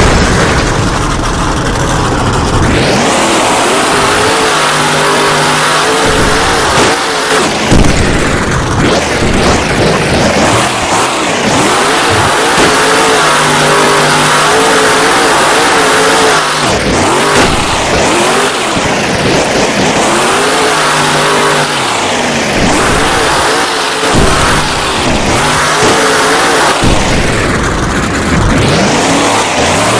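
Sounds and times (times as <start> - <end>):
truck engine revving hard: 0.0 - 29.9.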